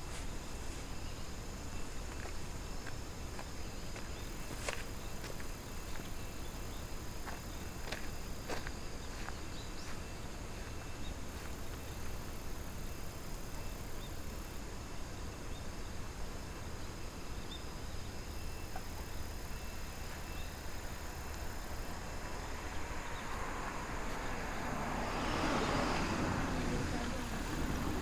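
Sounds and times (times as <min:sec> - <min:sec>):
broad rushing noise: 0:20.9 - 0:28.0.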